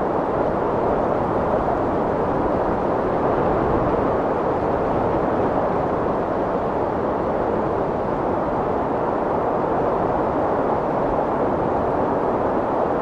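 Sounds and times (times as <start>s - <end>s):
strong wind blowing: 0.0s - 13.0s.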